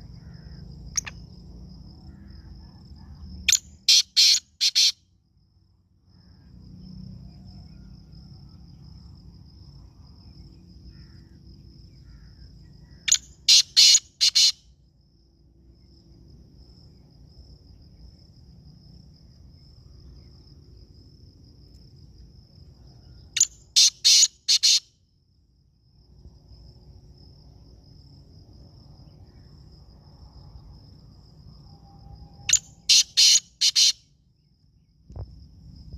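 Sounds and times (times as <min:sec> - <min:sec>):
faint high insect trill: 0:00.0 - 0:35.9
bird harsh rapid calls: 0:03.9 - 0:05.0, 0:13.1 - 0:14.6, 0:23.8 - 0:24.8, 0:32.5 - 0:34.0.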